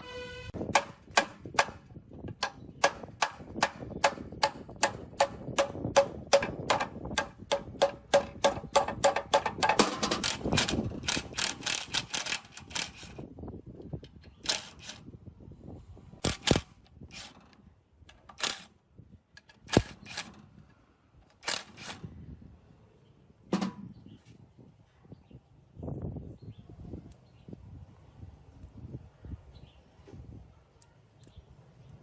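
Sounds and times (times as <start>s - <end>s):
knocks and clicks: 23.5s - 23.9s.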